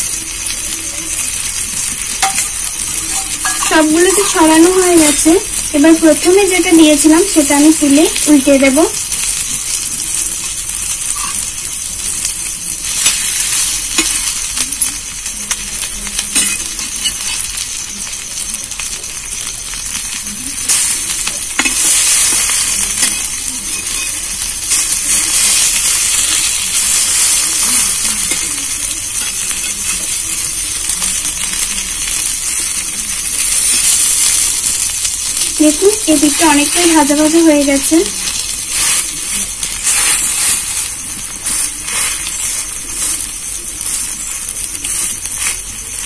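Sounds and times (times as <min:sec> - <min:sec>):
bread sizzling in hot oil: 0:00.0 - 0:46.0
spatula scraping a pan: 0:38.1 - 0:44.0.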